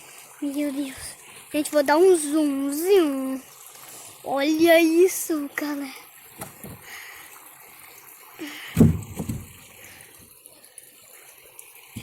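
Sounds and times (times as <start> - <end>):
faint trickling water: 0.0 - 12.0
low thump: 8.8 - 9.6.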